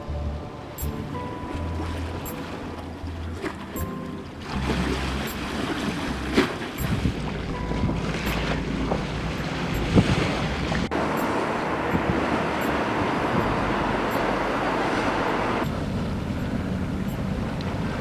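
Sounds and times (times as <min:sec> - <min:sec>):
steady rushing noise: 0:06.7 - 0:18.0.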